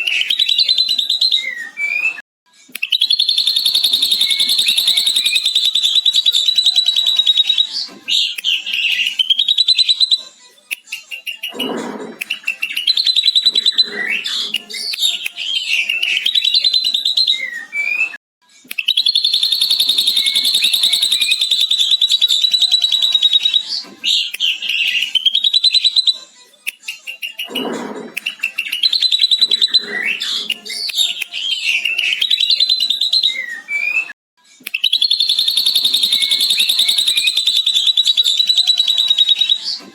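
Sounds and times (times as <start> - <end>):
bird singing mimicked calls: 2.8 - 10.2, 18.8 - 26.2, 34.7 - 39.9.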